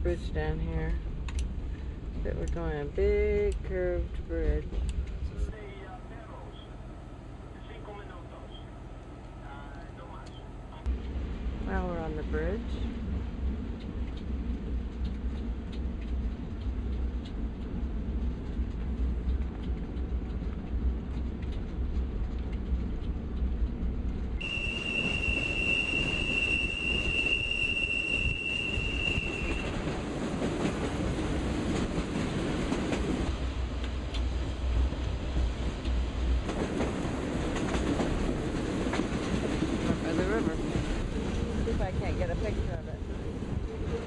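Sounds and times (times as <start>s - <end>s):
train running along rails: 0.0s - 44.0s
high-pitched wheel squeal: 24.4s - 29.8s.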